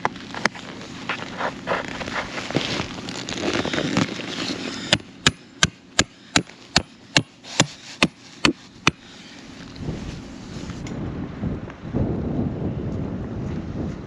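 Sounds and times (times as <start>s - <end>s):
wind noise: 9.6s - 14.0s.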